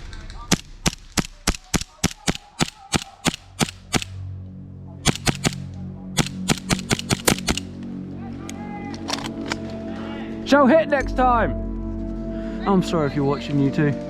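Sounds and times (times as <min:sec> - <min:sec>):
airsoft gun shots clicking: 0:00.5 - 0:04.2, 0:05.0 - 0:05.6, 0:06.2 - 0:07.8.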